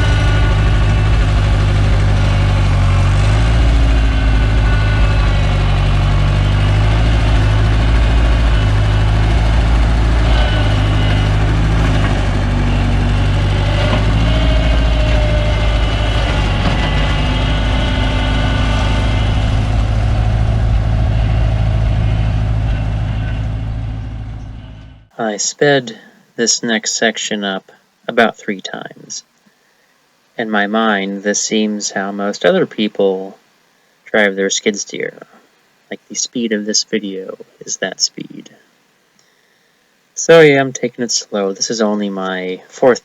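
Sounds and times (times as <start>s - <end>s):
skid steer engine running: 0.0s - 25.1s
hydraulic whining: 0.0s - 25.2s.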